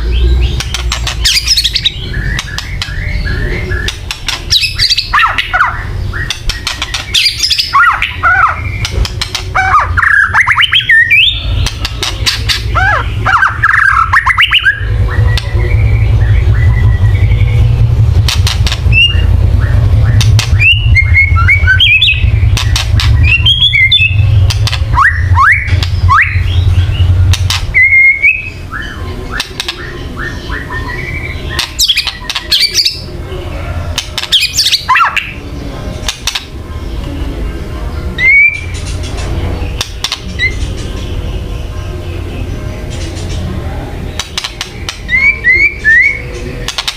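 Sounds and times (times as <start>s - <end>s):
bird harsh crackling calls: 0.0s - 15.6s
low hum: 0.0s - 46.8s.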